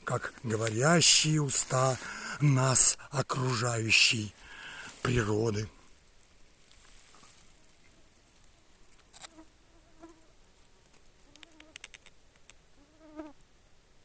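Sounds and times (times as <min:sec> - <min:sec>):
insect buzzing: 0:07.5 - 0:10.4, 0:11.2 - 0:12.1, 0:12.7 - 0:13.4.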